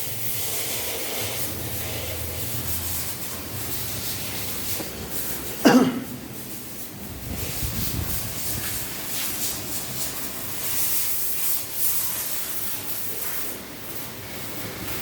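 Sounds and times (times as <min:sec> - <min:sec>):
spray gun hissing: 0:00.0 - 0:14.6.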